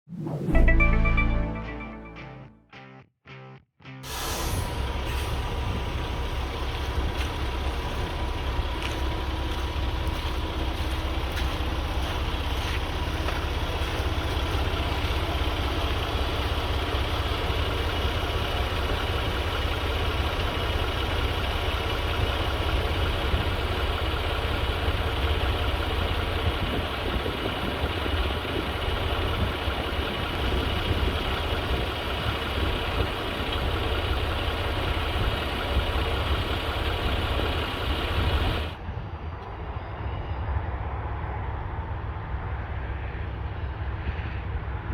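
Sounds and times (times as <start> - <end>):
truck diesel engine idling: 4.1 - 38.9.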